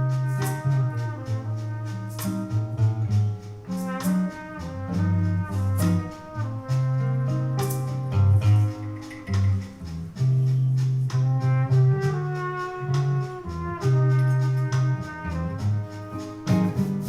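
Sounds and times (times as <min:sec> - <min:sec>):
jazz combo playing: 0:00.0 - 0:17.0
trumpet melody: 0:00.0 - 0:17.0
sharp percussive accents: 0:01.9 - 0:14.8.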